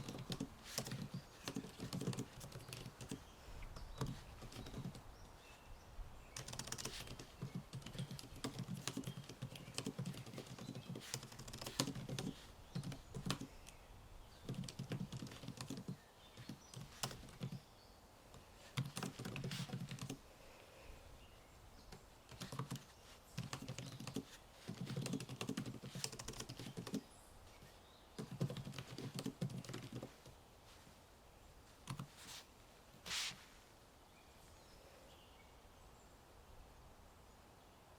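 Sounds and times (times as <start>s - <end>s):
typing on computer keyboard: 0.0s - 3.2s, 6.4s - 13.5s, 14.4s - 17.6s, 18.8s - 20.2s, 22.3s - 22.8s, 23.4s - 27.0s, 28.2s - 30.3s.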